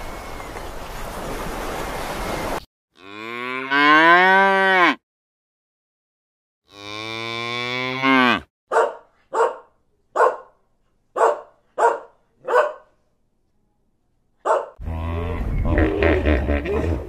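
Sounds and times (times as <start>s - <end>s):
cow mooing: 3.0s - 5.0s, 6.7s - 8.5s, 14.8s - 17.0s
small dog barking: 8.7s - 10.5s, 11.2s - 12.9s, 14.4s - 14.8s.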